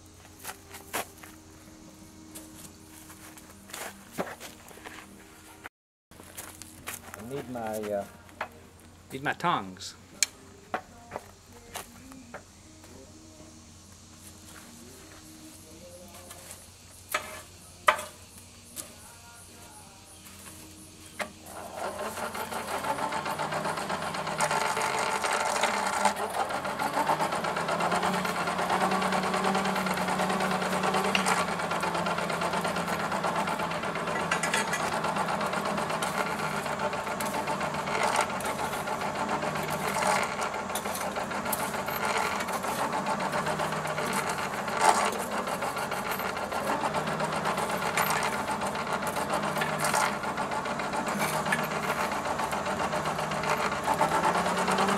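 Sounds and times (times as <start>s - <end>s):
forge blower running: 0.0s - 5.6s, 20.2s - 54.9s.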